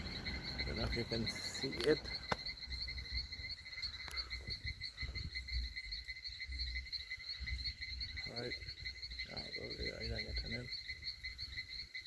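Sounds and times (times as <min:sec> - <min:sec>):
low rumbling: 0:00.0 - 0:05.1
insect chorus chirring: 0:00.0 - 0:12.0.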